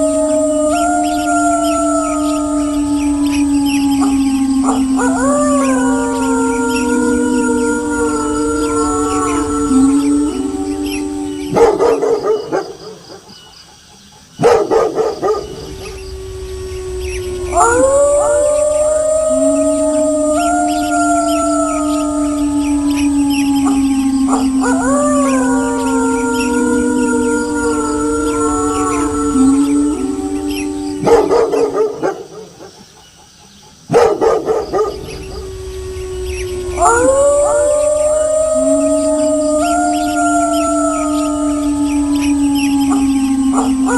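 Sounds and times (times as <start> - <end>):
wolves howling: 0.0 - 13.4, 14.4 - 32.8, 33.9 - 43.9
dog barking: 14.4 - 15.6, 33.9 - 35.0.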